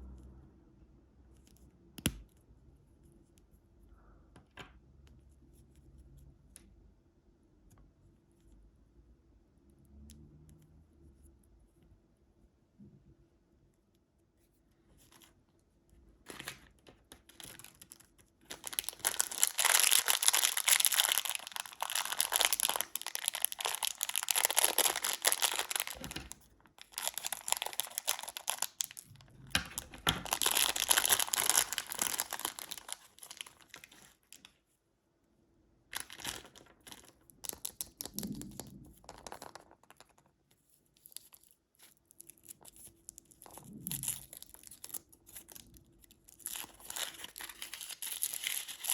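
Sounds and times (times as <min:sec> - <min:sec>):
candy wrapper crinkling and tearing: 0:16.2 - 0:34.5, 0:35.9 - 0:48.9.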